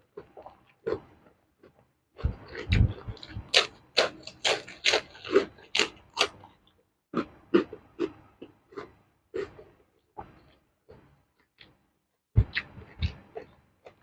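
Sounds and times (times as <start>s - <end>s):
chewing crunchy food: 0.0s - 11.8s, 12.4s - 14.0s
low muffled rumble: 2.2s - 3.6s, 12.4s - 13.1s.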